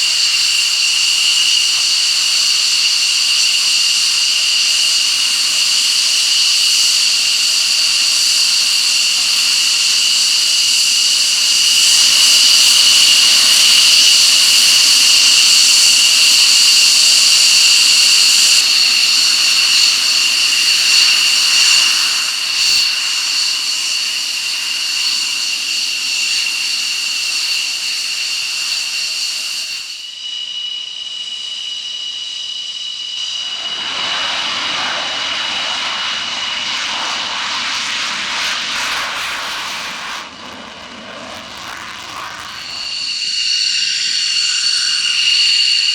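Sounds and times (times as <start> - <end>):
jet engine whine: 0.0 - 45.9
rushing roar: 33.4 - 45.9.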